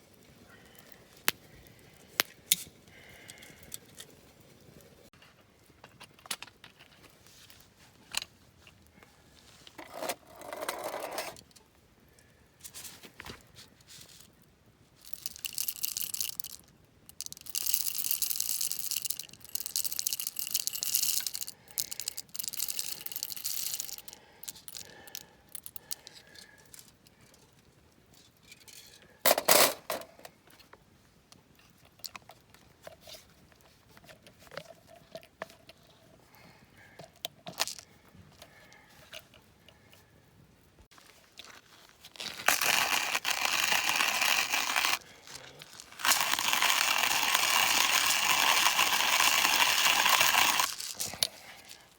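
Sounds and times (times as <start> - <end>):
crackles: 0.0 - 9.8, 30.4 - 51.9
coffee beans rattling in roaster: 17.2 - 24.1, 42.4 - 45.0, 46.0 - 51.1.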